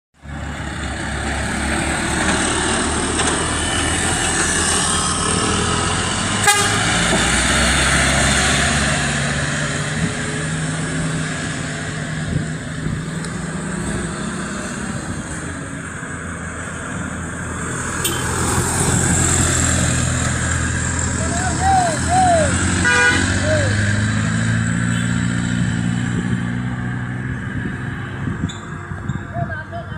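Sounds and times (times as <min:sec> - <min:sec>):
heavy truck engines running: 0:00.2 - 0:29.9
horn toot: 0:06.4 - 0:07.2, 0:22.8 - 0:23.8.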